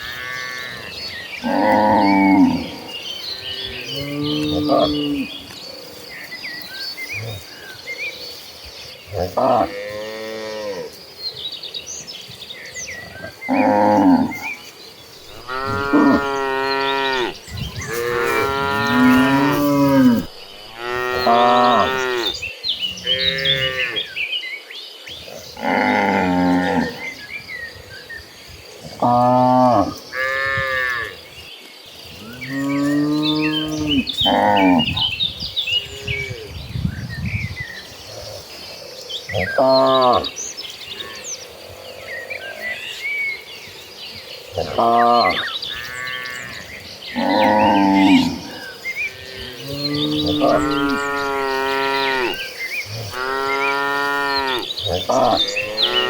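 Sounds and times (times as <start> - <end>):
cattle mooing: 15.3 - 22.4, 49.2 - 52.4, 53.0 - 56.0.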